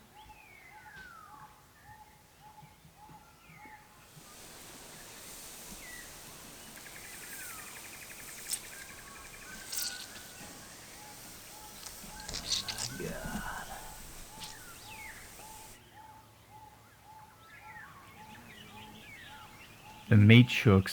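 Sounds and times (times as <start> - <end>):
birds calling: 3.6 - 16.0, 17.4 - 20.9
steady hiss: 4.0 - 15.8.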